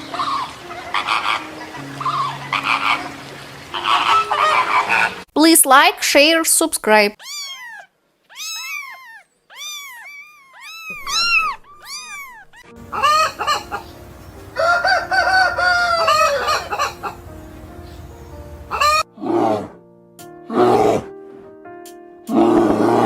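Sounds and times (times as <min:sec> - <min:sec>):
chickens squawking: 0:00.0 - 0:05.2, 0:07.2 - 0:19.1
rooster crowing: 0:14.5 - 0:17.1.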